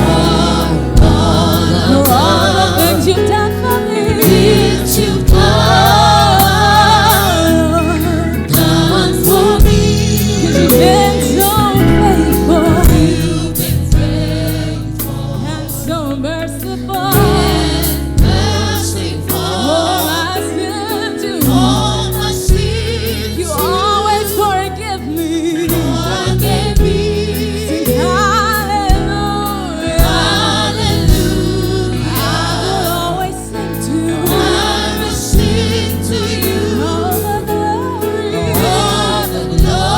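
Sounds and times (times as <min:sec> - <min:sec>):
bass notes: 0:00.0 - 0:39.9
gospel choir singing: 0:00.0 - 0:39.9
drum hits: 0:01.0 - 0:03.1, 0:09.6 - 0:19.4.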